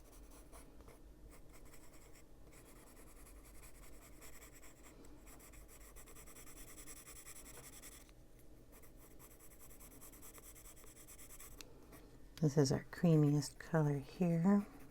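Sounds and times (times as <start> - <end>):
pencil scratching on paper: 0.0 - 8.1, 8.7 - 11.6, 14.2 - 14.9.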